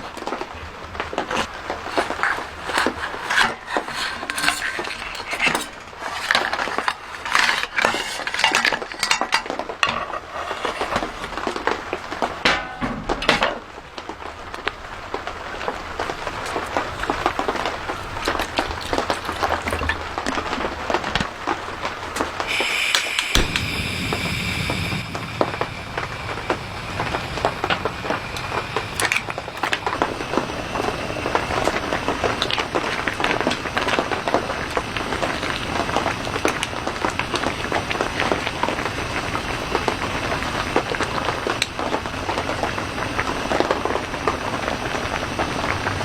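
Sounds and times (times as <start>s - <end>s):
metal cookware clinking and scraping: 1.9s - 11.7s, 12.4s - 13.6s.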